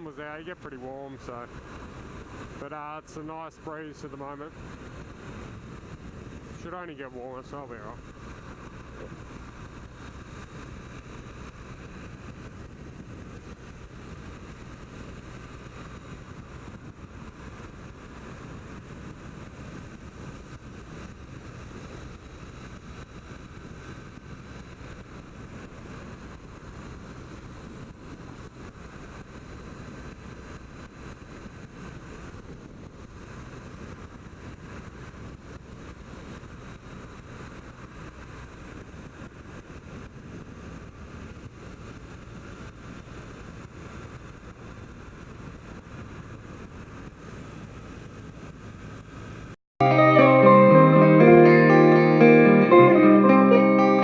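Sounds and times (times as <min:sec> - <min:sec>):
wind noise on microphone: 0:08.0 - 0:47.6.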